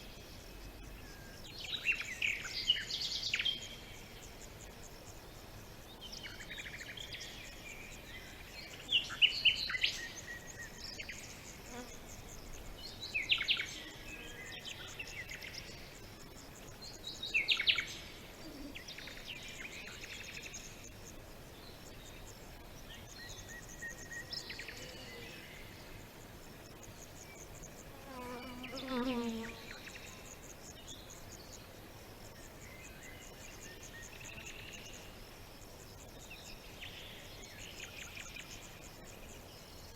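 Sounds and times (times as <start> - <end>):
birds singing: 0.0 - 35.1
insects chorus: 0.0 - 39.9.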